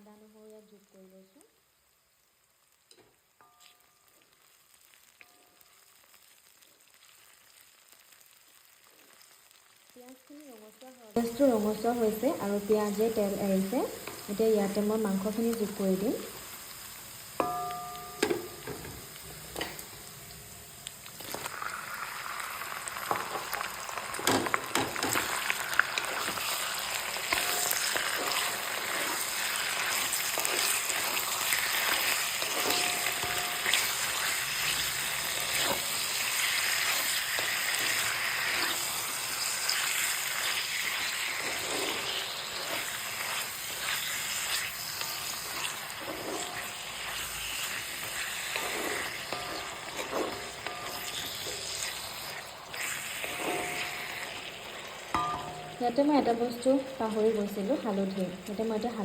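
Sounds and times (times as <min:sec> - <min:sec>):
meat sizzling in oil: 0:00.0 - 0:59.0
stirring scrapes and clicks: 0:41.4 - 0:47.3, 0:48.0 - 0:53.9.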